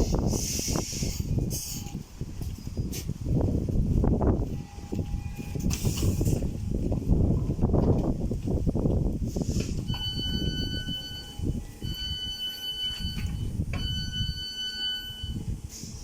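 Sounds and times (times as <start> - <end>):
train rumbling: 0.0 - 16.0
electronic warning tone: 9.9 - 15.6.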